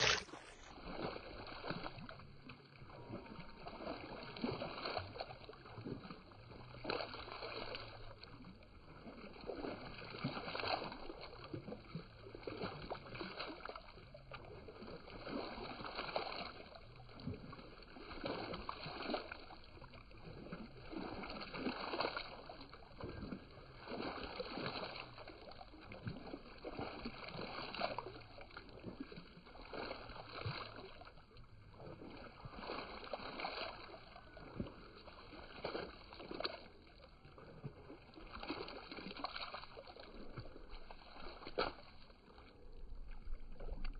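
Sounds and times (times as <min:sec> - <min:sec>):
water splashing in a puddle: 0:00.0 - 0:43.9.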